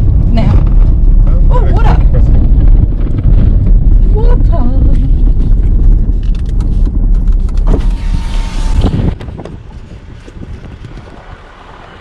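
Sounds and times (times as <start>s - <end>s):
steady rush: 0.0s - 12.0s
vehicle rumbling on dirt track: 0.0s - 12.0s.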